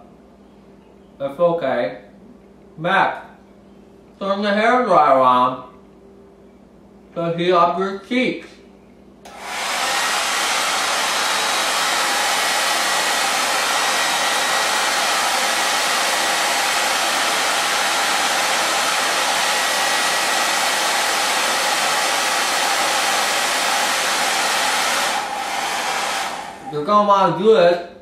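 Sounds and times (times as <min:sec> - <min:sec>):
hair dryer blowing: 0:09.2 - 0:27.3.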